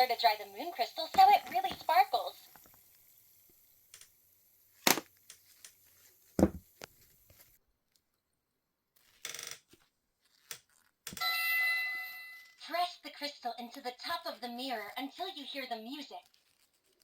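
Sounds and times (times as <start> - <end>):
plastic toy parts knocking: 4.9 - 5.1, 6.4 - 6.6
electronic toy ringing chime: 11.2 - 12.6.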